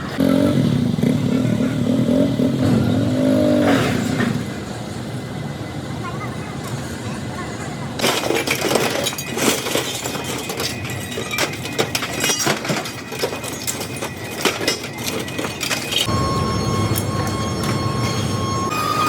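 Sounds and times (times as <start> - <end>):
factory machinery din: 0.1 - 19.0
metallic clanks and knocks: 8.0 - 16.1.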